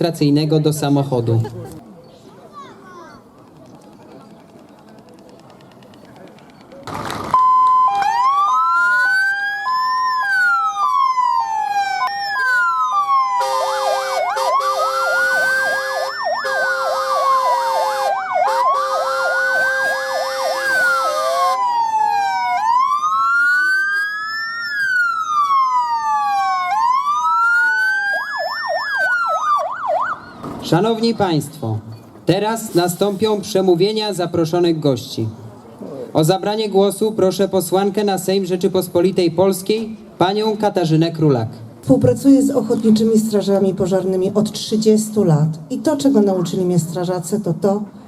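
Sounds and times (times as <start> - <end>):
fire engine sirens: 7.0 - 31.1.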